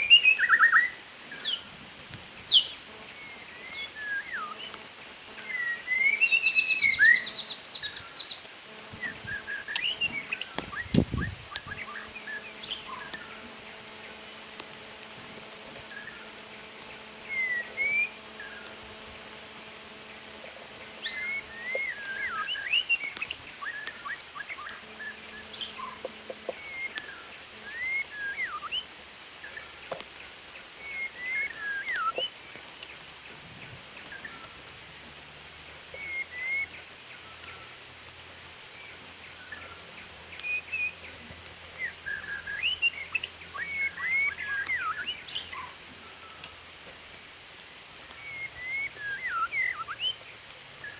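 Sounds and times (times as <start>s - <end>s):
bird singing whistled notes: 0.0s - 1.6s, 2.4s - 4.8s, 5.4s - 8.4s, 9.0s - 13.4s, 17.1s - 18.8s, 20.9s - 29.6s, 30.8s - 32.3s, 36.0s - 37.8s, 38.8s - 41.1s, 41.8s - 46.6s, 48.1s - 50.2s
high-pitched background whine: 0.0s - 50.9s.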